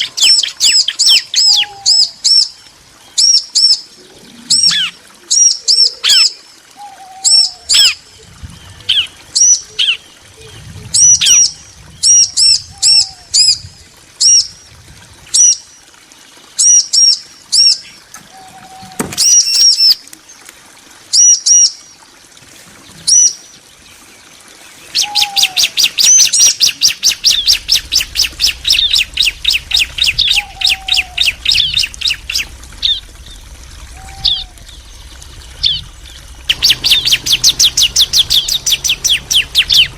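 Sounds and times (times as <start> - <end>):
bird chirps: 24.9 - 39.9
bird trill: 25.0 - 39.9.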